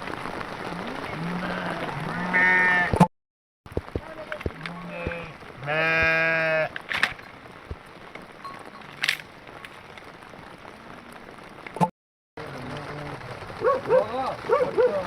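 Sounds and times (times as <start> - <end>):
sheep bleating: 0.7 - 3.0, 4.5 - 6.8.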